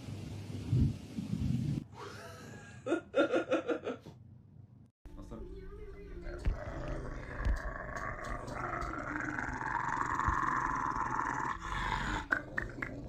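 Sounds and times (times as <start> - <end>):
animal growling: 6.4 - 13.0.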